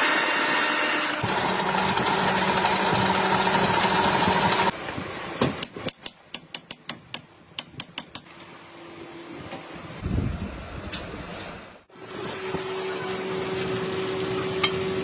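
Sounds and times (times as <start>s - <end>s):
power machine hum and whine: 0.0s - 4.7s.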